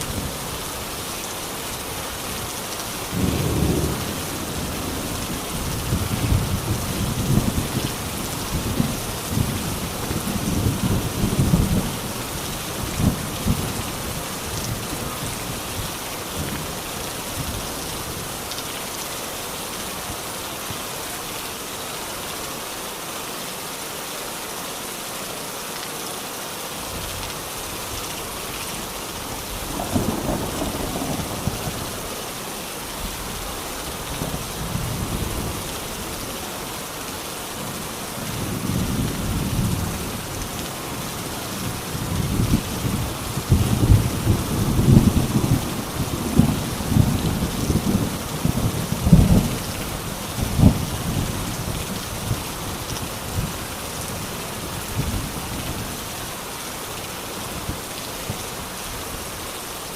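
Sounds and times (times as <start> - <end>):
steady rain falling: 0.0 - 59.9
thunder rumbling: 3.1 - 12.1, 29.6 - 32.0, 41.6 - 52.4.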